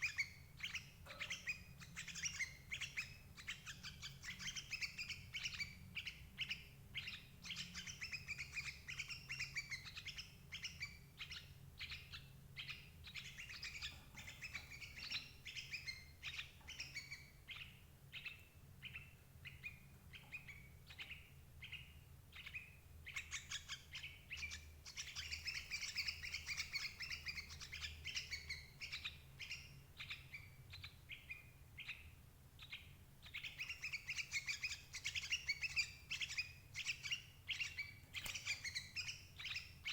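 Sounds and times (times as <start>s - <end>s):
birds chirping: 0.0s - 39.9s
low steady hum: 0.0s - 39.9s.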